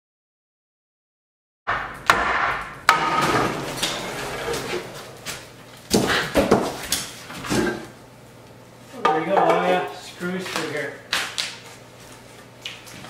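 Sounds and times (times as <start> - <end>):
hammer strikes: 1.7 - 6.8
scraping and clatter of debris: 2.9 - 7.9.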